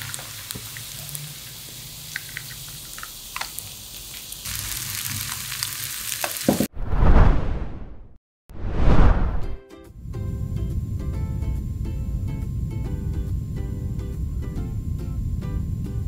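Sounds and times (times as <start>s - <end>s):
patties sizzling in butter: 0.0s - 6.7s
loud whoosh: 6.8s - 11.3s.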